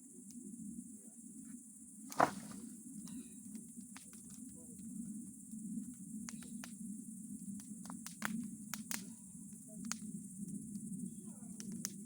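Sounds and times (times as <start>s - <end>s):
bonfire crackling: 6.0s - 10.2s.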